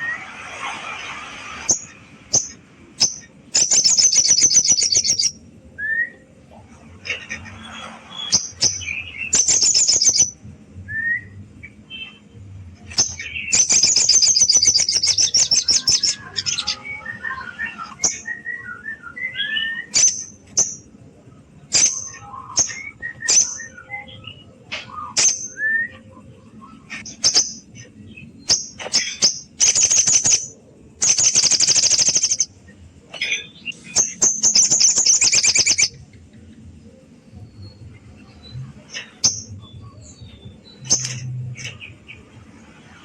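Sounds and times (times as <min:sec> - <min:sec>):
bird whistles and chirps: 0:00.9 - 0:06.3, 0:07.7 - 0:12.3, 0:12.9 - 0:20.9, 0:21.7 - 0:32.5, 0:33.2 - 0:36.0
songbird rattling trills: 0:01.7 - 0:05.3, 0:09.4 - 0:10.3, 0:13.1 - 0:16.2, 0:28.5 - 0:32.5, 0:34.0 - 0:35.9.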